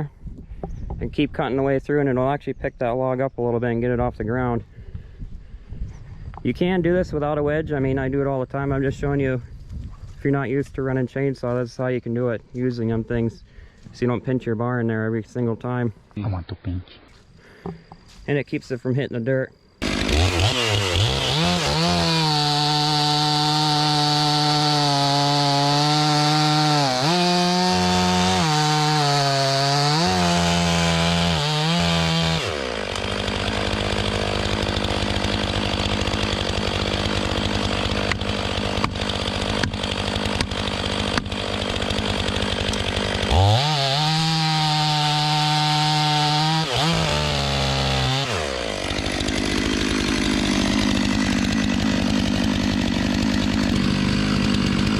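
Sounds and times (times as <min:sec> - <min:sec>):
chainsaw cutting log: 0:19.8 - 0:54.9.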